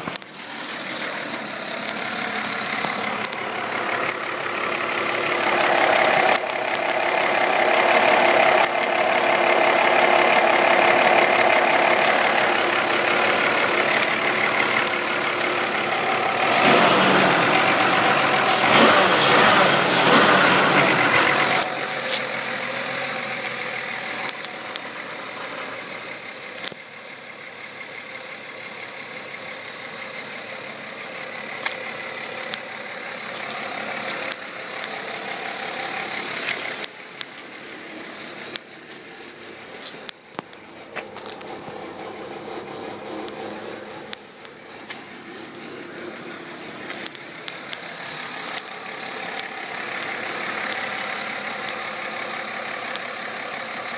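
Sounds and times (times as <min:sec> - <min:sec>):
car engine idling: 0:00.0 - 0:53.9
sharp clicks: 0:05.8 - 0:07.1, 0:32.4 - 0:32.7, 0:46.8 - 0:47.9.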